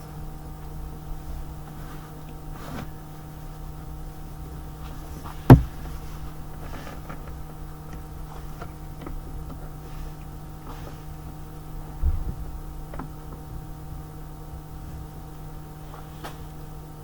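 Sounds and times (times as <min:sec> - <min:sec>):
steady hum: 0:00.0 - 0:17.0
sharp knock: 0:05.5 - 0:05.8.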